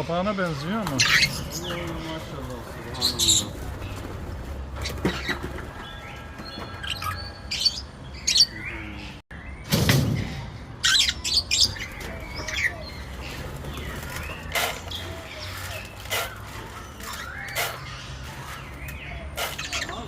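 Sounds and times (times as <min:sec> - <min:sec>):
parrot-like birds squawking: 0:00.3 - 0:09.2, 0:10.8 - 0:20.0.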